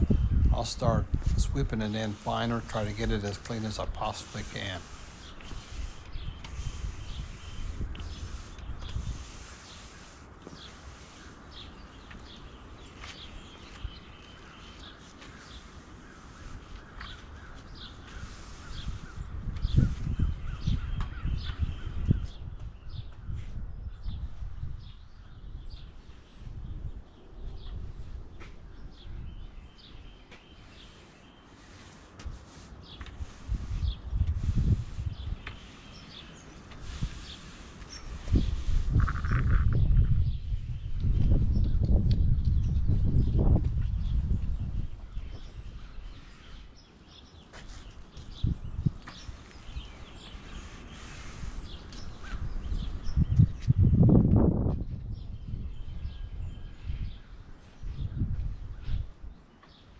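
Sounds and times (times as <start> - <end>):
birds chirping: 0.0 - 6.4
push broom sweeping sand: 0.0 - 19.2, 29.6 - 39.0, 46.0 - 48.4, 49.0 - 52.3
small birds chirping: 0.0 - 59.9.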